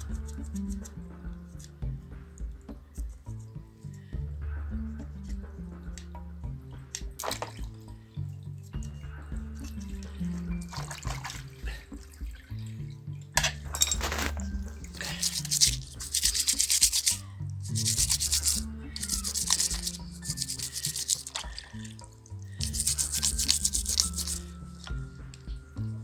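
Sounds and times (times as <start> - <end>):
background music: 0.0 - 26.0
scraping dirt off a part: 6.9 - 7.8, 13.4 - 25.5.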